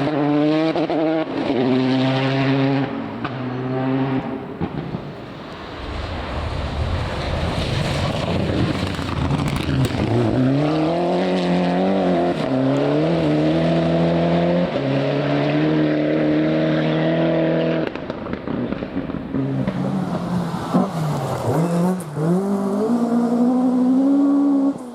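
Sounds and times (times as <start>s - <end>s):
rally car engine accelerating: 0.0s - 5.0s, 6.6s - 24.9s
noisy rushing: 4.2s - 14.2s.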